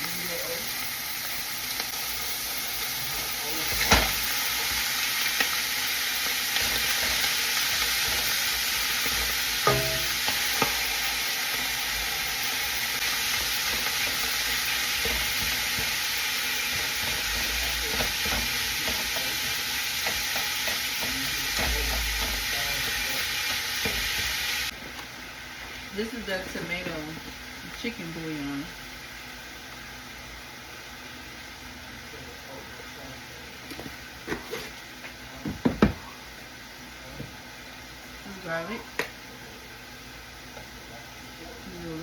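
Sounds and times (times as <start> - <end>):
meat sizzling in a pan: 0.0 - 32.5
utensil knocking against pan: 9.6 - 10.8, 20.0 - 22.5.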